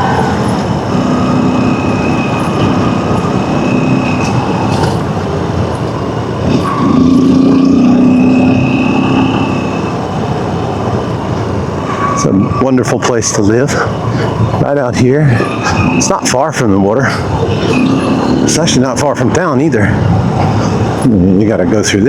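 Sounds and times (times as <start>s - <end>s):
dirt bike engine running: 0.0s - 11.2s.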